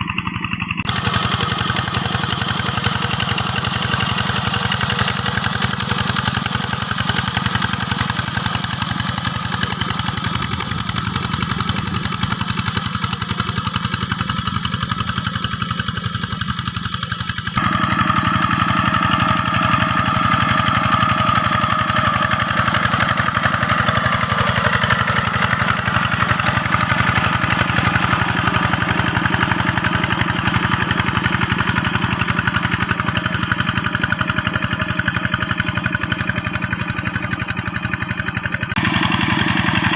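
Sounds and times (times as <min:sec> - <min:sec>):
diesel hand tractor engine running: 0:00.0 - 0:39.9.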